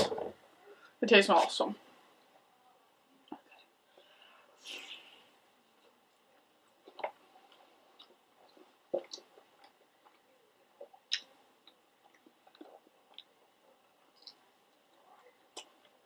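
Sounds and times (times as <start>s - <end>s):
person chewing food: 5.8s - 16.0s.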